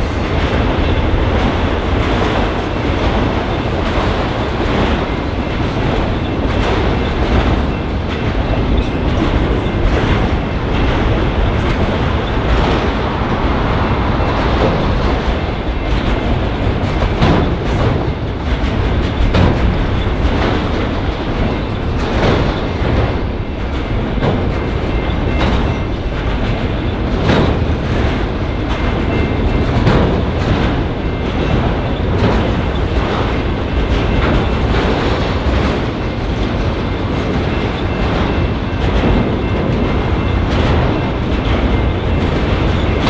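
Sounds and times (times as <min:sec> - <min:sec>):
train wheels rumbling on rails: 0:00.0 - 0:43.0
wheel clicks over rail joints: 0:15.9 - 0:43.0.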